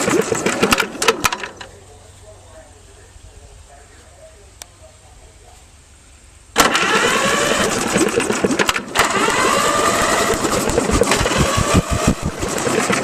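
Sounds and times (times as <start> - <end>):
electric starter cranking engine: 0.0 - 1.5, 6.6 - 13.0.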